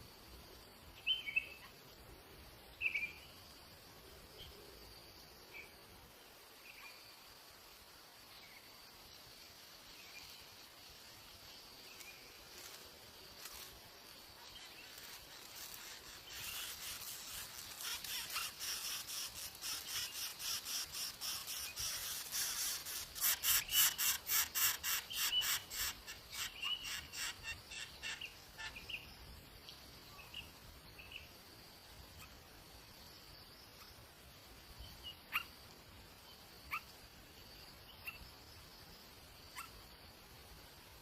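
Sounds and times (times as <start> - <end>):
faint high insect drone: 0.0 - 41.0
nestling birds chirping: 13.4 - 29.2.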